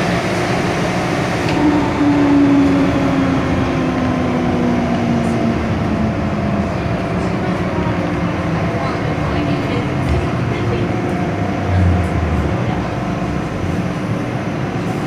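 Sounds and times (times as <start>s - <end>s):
train rail rumble: 0.0s - 15.0s
train motor whine: 0.9s - 7.6s.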